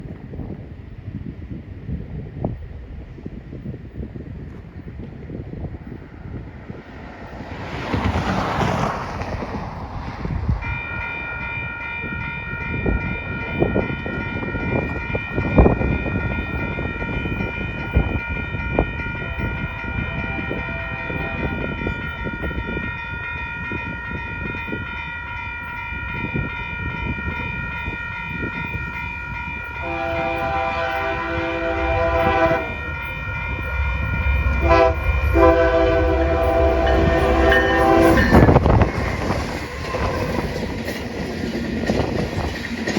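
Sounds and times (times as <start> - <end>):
train rumbling and clattering: 0.0 - 42.9
locomotive horn blast: 19.3 - 21.8, 29.8 - 40.5
lower-pitched horn chord: 29.8 - 38.8.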